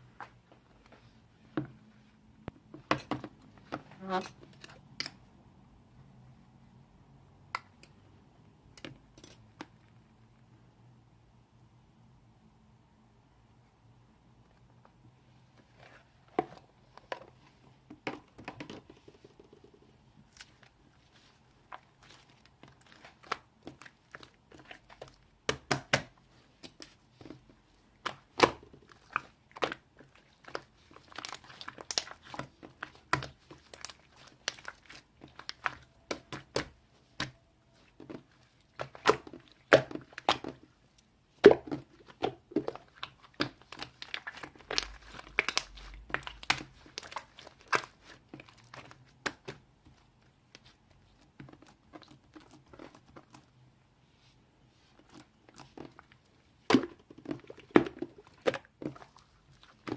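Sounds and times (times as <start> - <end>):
objects crinkling and tearing: 26.6 - 50.0.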